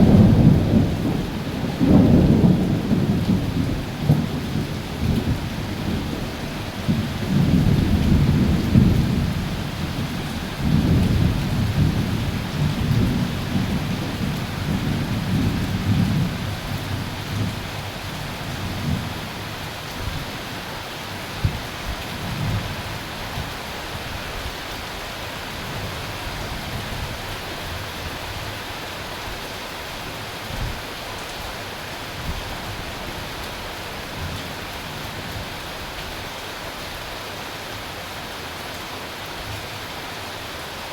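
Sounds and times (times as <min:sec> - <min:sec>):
thunder rumbling: 0:00.0 - 0:19.2
steady rain: 0:00.0 - 0:40.9.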